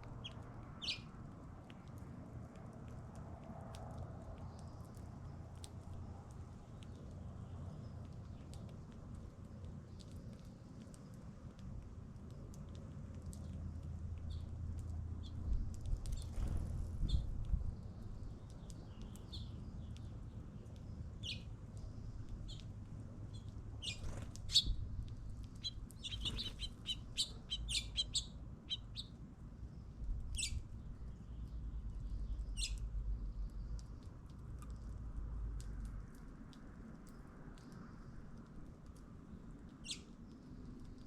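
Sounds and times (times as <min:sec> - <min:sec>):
small birds chirping: 0:00.0 - 0:01.2, 0:12.2 - 0:35.0, 0:39.2 - 0:41.0.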